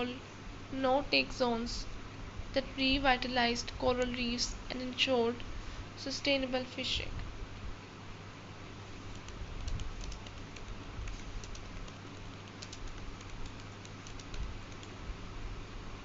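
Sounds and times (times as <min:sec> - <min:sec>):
background hiss: 0:00.0 - 0:16.0
light irregular clicking: 0:09.1 - 0:15.0.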